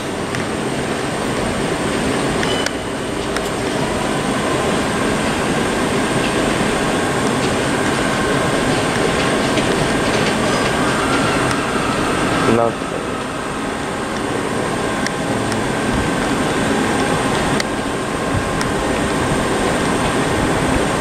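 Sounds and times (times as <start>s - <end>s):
train wheels rolling on rail: 0.0s - 21.0s
faint high wheel squeal: 2.4s - 3.2s.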